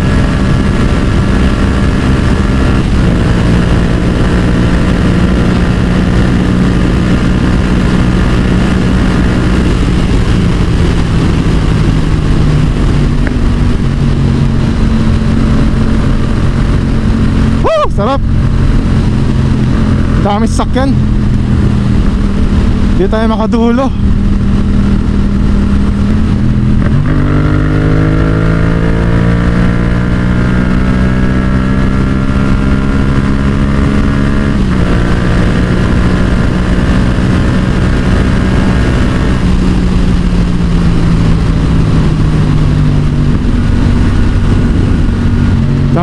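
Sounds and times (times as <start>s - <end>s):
wind rushing over microphone: 0.0s - 46.0s.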